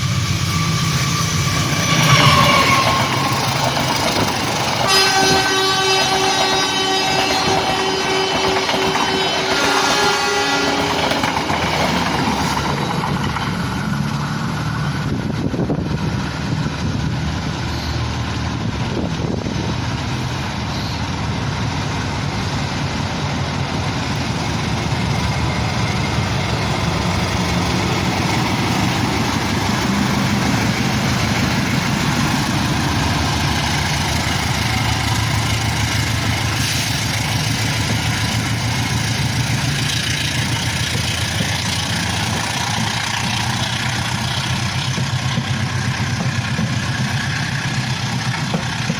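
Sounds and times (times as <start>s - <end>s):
diesel locomotive engine drone: 0.0s - 48.9s
locomotive horn: 0.2s - 3.8s, 4.6s - 11.4s.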